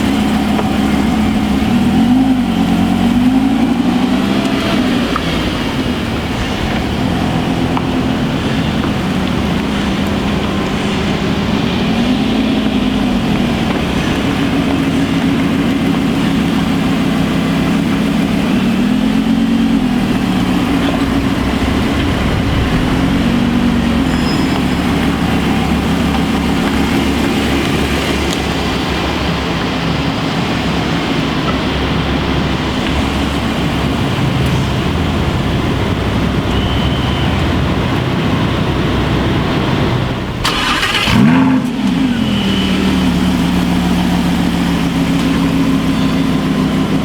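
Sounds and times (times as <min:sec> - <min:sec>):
car engines idling: 0:00.0 - 0:47.0.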